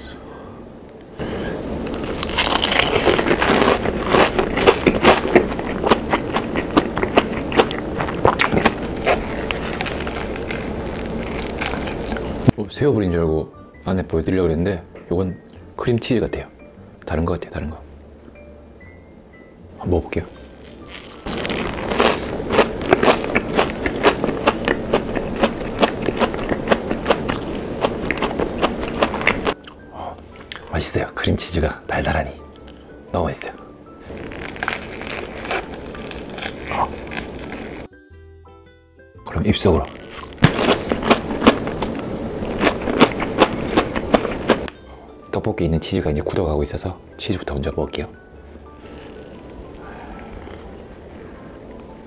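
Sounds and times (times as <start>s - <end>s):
crunchy food chewing: 1.8s - 12.5s, 20.6s - 29.8s, 34.1s - 37.9s, 39.6s - 44.7s, 48.8s - 51.9s.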